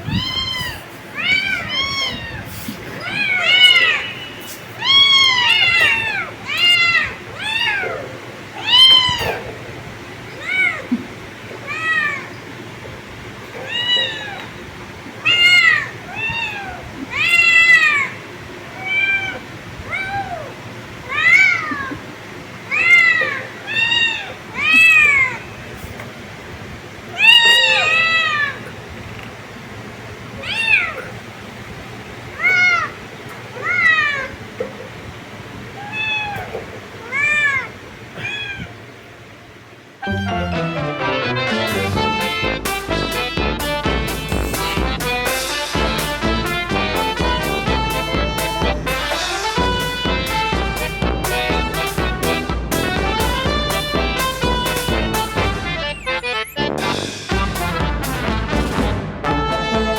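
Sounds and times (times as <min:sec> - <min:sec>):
kittens meowing: 0:00.0 - 0:12.5, 0:13.5 - 0:22.1, 0:22.7 - 0:25.6, 0:27.1 - 0:28.8, 0:30.4 - 0:31.2, 0:32.3 - 0:34.5, 0:35.7 - 0:38.8.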